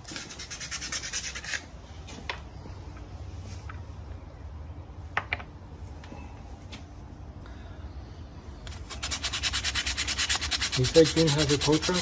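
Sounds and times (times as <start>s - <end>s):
sanding on abrasive paper: 8.9s - 12.0s.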